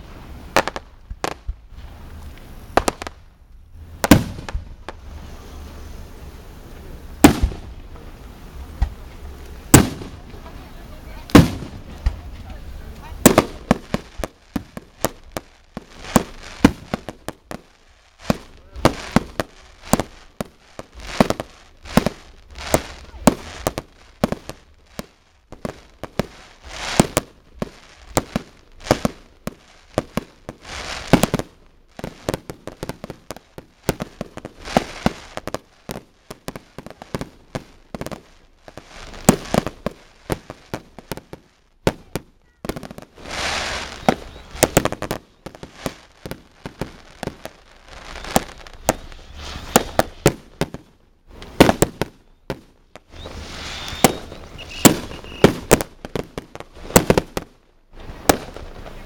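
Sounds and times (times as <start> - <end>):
fireworks bursting: 0.0 - 59.0
fireworks crackling hiss: 0.0 - 59.0.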